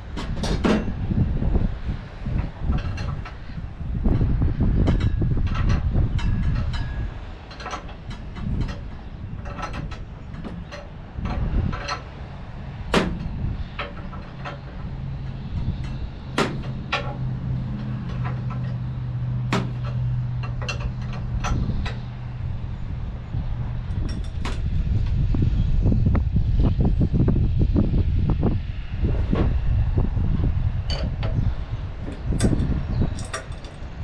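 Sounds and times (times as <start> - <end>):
steady low drone: 0.0 - 34.0
wrenches clinking on metal: 4.9 - 12.1, 13.0 - 22.0, 32.1 - 33.8.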